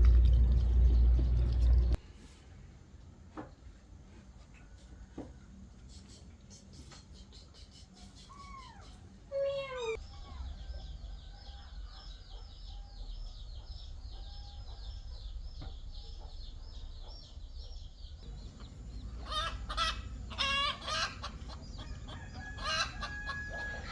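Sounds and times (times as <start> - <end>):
chickens clucking: 18.2 - 23.9.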